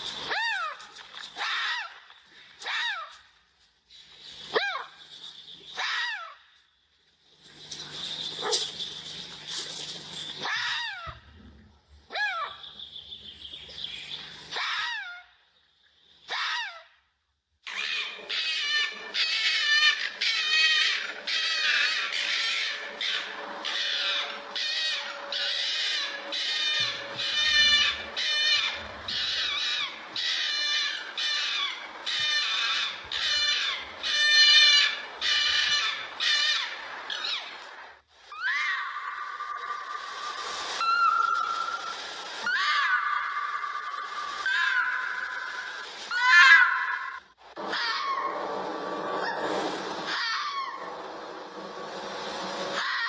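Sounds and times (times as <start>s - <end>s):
fox whining call: 17.7s - 37.7s, 38.3s - 48.5s, 49.1s - 51.0s.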